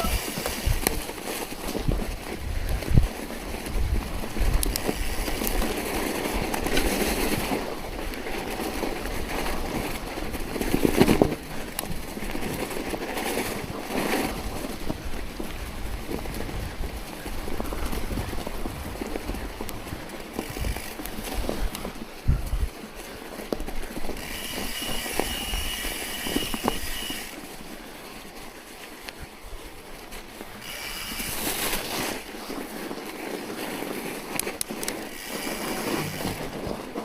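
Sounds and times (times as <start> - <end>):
wind buffeting microphone: 0.0 - 27.3
snow crunching: 0.0 - 37.0.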